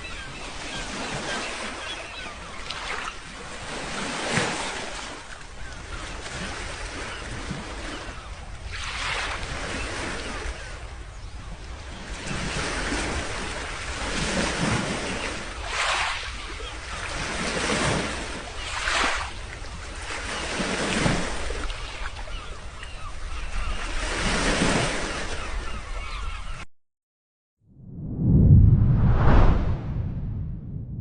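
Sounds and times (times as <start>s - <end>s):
sea waves breaking on shore: 0.0s - 26.4s
wind rumbling on microphone: 27.7s - 31.0s.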